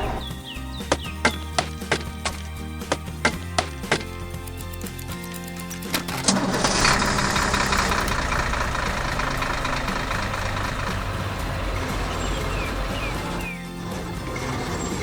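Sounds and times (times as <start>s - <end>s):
knocks: 0.0s - 4.1s
diesel engine running: 0.0s - 4.2s, 5.9s - 15.0s.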